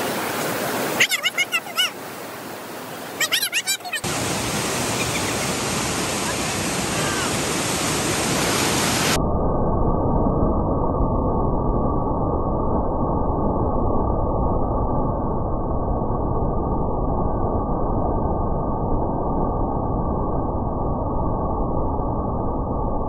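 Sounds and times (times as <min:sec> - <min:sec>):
rushing water: 0:00.0 - 0:09.2
rapidly repeated high calls: 0:01.0 - 0:02.0, 0:03.2 - 0:04.1.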